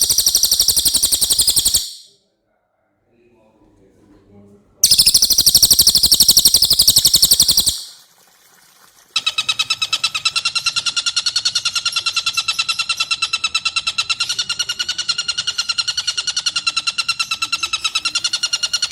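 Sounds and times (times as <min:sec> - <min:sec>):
bird chatter: 0:00.0 - 0:02.1, 0:04.8 - 0:08.0
bird high rapid trill: 0:00.0 - 0:02.1, 0:04.8 - 0:08.0.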